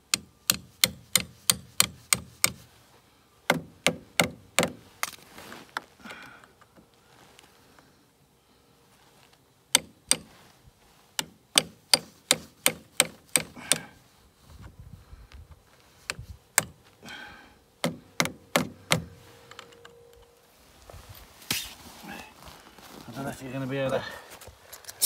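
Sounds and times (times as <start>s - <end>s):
hammer striking metal pins: 0.1s - 2.6s, 9.8s - 10.3s.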